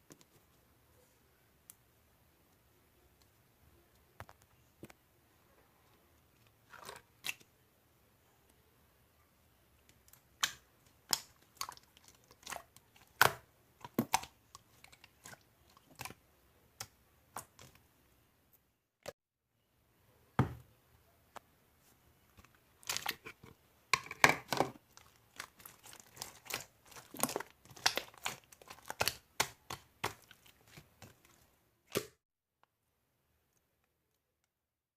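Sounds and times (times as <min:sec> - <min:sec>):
crunching frozen ice dessert: 0:24.8 - 0:31.4.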